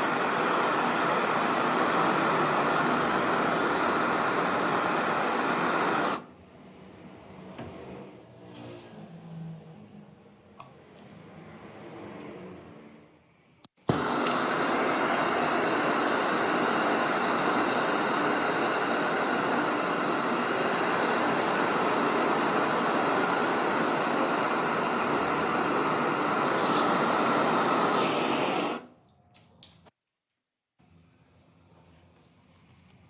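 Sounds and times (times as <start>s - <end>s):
workshop tool hissing: 0.0s - 6.3s, 13.1s - 28.9s.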